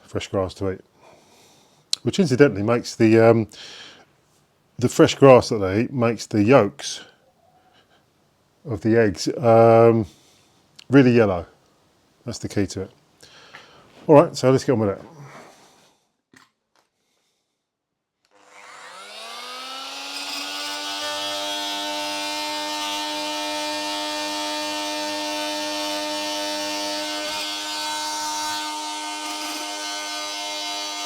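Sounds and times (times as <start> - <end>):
power tool motor whine: 18.3 - 31.0.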